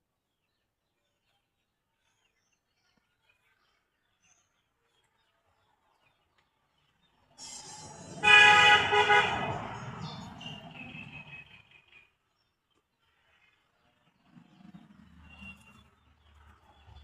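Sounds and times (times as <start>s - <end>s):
horn-like honk: 7.4s - 11.6s.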